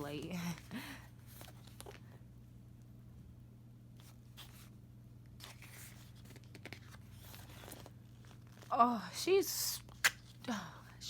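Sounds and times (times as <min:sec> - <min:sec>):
low electrical hum: 0:00.0 - 0:11.0
pages rustling and turning: 0:00.1 - 0:02.2, 0:04.0 - 0:08.7.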